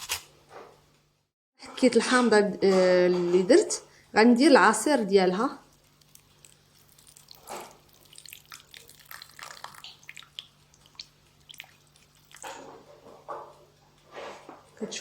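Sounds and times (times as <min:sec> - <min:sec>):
juice dripping into bowl: 0:05.6 - 0:12.6.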